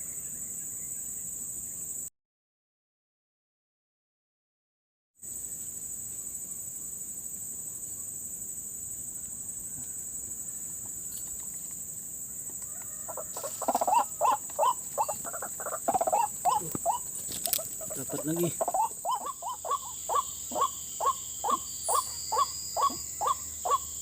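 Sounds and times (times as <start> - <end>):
high-pitched insect drone: 5.2 - 24.0.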